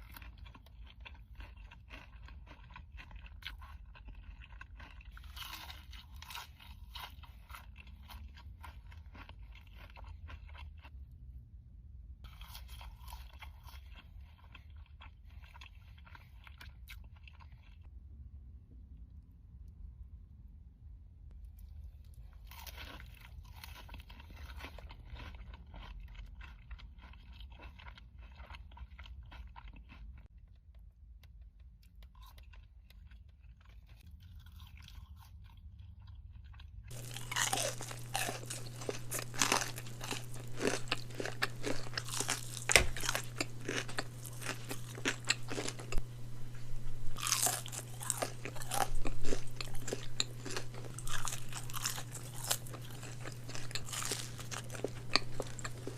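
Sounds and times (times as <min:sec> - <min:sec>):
chewing and crunching: 0:00.0 - 0:11.2, 0:12.2 - 0:17.9, 0:21.3 - 0:55.9
steady low hum: 0:36.9 - 0:55.9.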